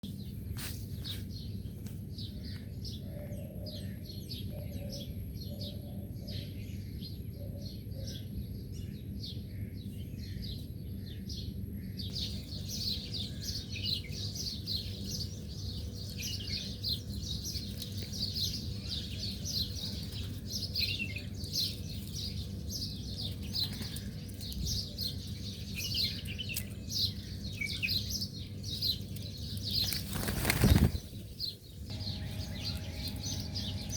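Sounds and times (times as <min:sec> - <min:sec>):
small birds chirping: 0:12.0 - 0:33.9.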